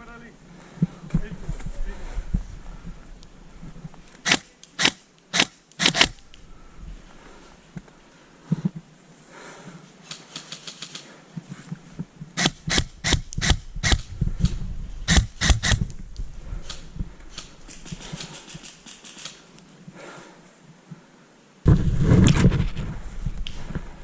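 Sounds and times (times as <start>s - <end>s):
airsoft guns rapid fire: 4.2s - 6.2s, 12.4s - 14.0s, 15.1s - 15.8s.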